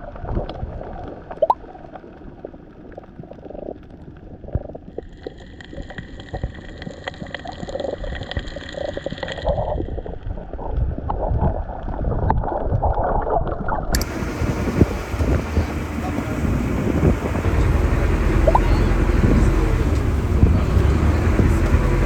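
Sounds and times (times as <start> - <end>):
muffled water sloshing: 14.0 - 22.0.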